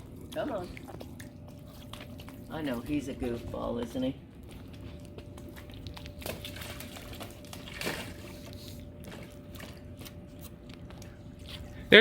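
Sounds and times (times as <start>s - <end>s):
dog splashing in water: 4.7s - 10.2s.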